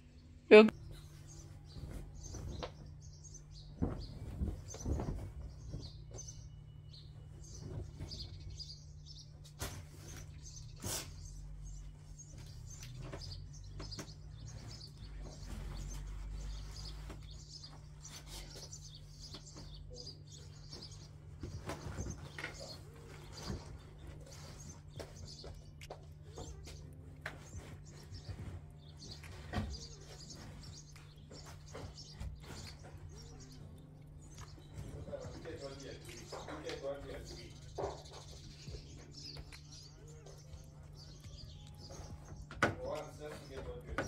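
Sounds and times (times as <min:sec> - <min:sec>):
small birds chirping: 0:00.0 - 0:44.0
knocks and bumps: 0:01.6 - 0:08.7, 0:34.4 - 0:39.6.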